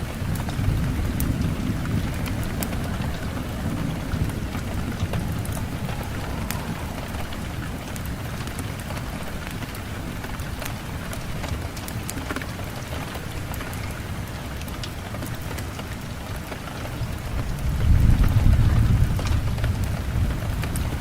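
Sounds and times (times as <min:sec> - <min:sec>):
low rumble: 0:00.0 - 0:09.6
rain falling: 0:00.0 - 0:21.0.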